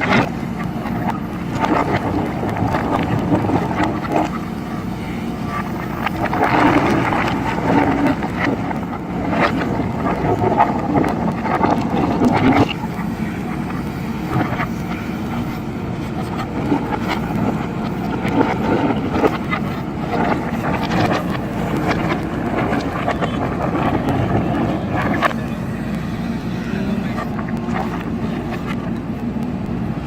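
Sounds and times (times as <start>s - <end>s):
gravel and stone clattering: 0.0s - 29.1s
diesel engine running under load: 0.0s - 30.0s.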